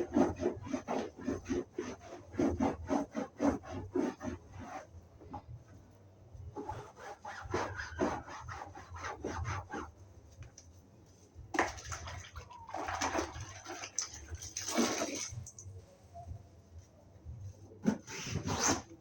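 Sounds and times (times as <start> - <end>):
sponge scrubbing upholstery: 0.0 - 4.9, 6.5 - 10.0.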